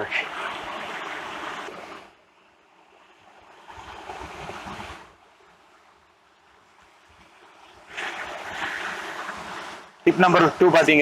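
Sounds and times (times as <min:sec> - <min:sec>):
distant sea surf breaking: 0:07.4 - 0:11.0.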